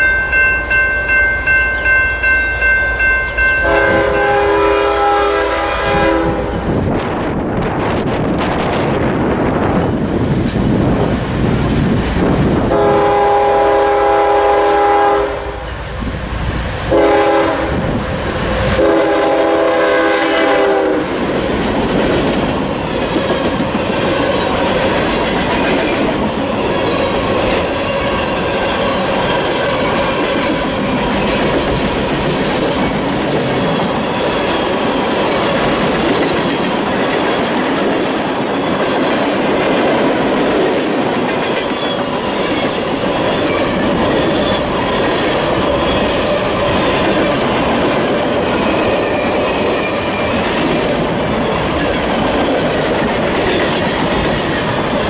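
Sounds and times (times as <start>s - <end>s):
locomotive horn blasts: 3.4s - 6.6s, 12.7s - 15.7s, 16.9s - 17.8s, 18.8s - 21.1s.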